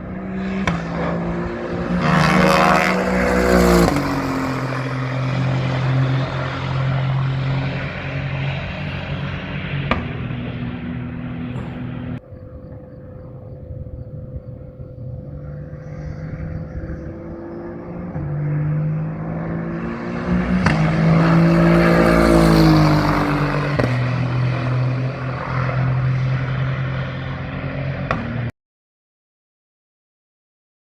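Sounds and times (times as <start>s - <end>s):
race car engines: 0.0s - 28.5s
race car passing by: 0.0s - 28.5s.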